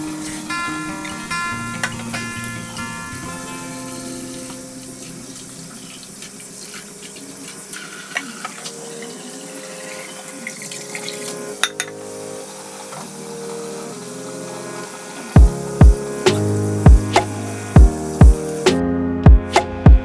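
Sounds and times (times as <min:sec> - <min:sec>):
acoustic guitar music: 0:00.0 - 0:09.2.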